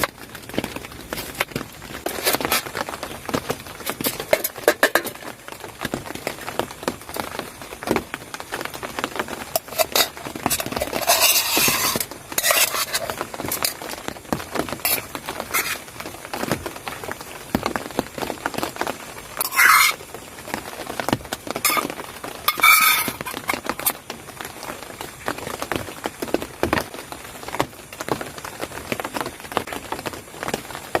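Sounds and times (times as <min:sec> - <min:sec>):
utensils clinking against pots: 0:03.9 - 0:05.3, 0:09.5 - 0:13.8, 0:14.8 - 0:15.8, 0:19.4 - 0:20.0, 0:21.6 - 0:21.9, 0:22.5 - 0:23.9.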